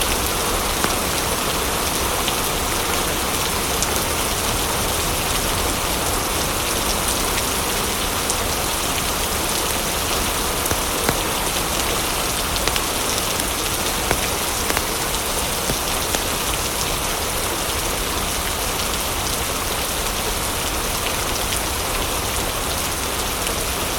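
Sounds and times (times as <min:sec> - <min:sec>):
steady rain: 0:00.0 - 0:23.9
sharp clicks and ticks: 0:10.7 - 0:11.5, 0:12.7 - 0:16.5.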